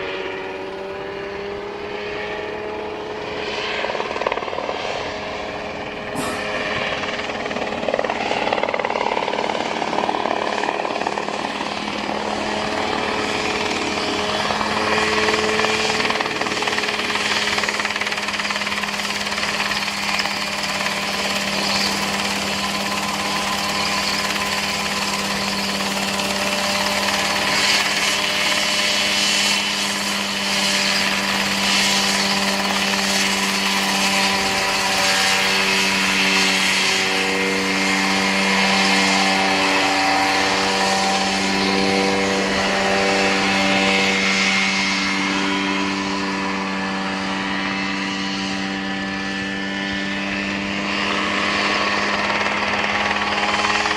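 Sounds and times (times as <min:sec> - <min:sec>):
helicopter engine drone: 0:00.0 - 0:53.9.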